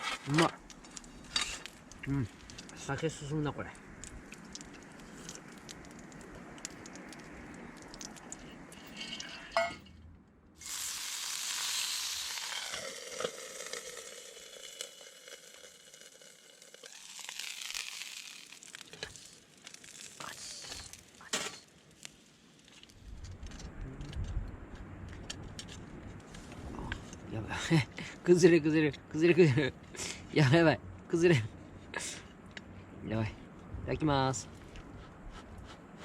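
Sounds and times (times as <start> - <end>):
soft steady hiss: 0.0 - 36.0
food sizzling in oil: 10.6 - 22.9.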